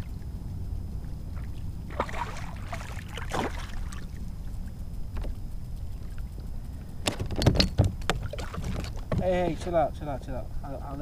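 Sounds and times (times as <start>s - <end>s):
wind rumble on microphone: 0.0s - 11.0s
fish splashing in water: 1.4s - 4.2s.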